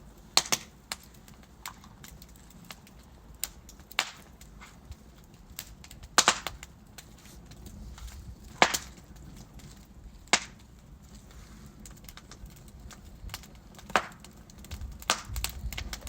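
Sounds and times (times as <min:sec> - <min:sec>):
log fire crackling: 0:00.0 - 0:16.0
loud sharp pops: 0:00.3 - 0:01.0, 0:03.4 - 0:04.3, 0:05.6 - 0:06.7, 0:08.5 - 0:09.0, 0:10.3 - 0:10.6, 0:13.3 - 0:14.3, 0:15.0 - 0:16.0.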